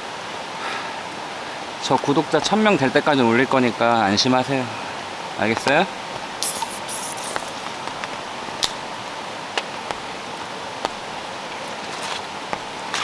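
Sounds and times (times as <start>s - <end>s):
heavy rain hissing: 0.0s - 13.0s
raindrops ticking: 1.0s - 13.0s.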